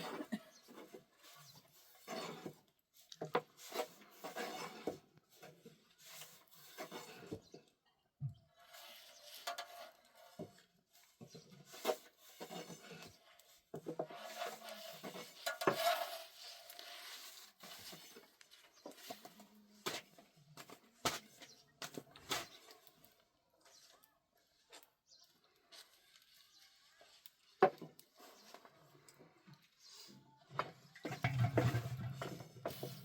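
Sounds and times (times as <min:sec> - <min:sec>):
cookware scraping and clattering: 0:13.8 - 0:16.7, 0:31.0 - 0:33.0.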